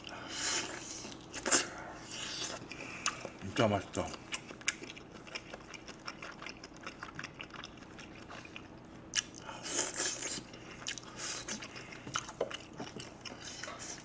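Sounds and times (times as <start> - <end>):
chewing with wet mouth clicks: 1.0 - 3.4, 4.1 - 14.0.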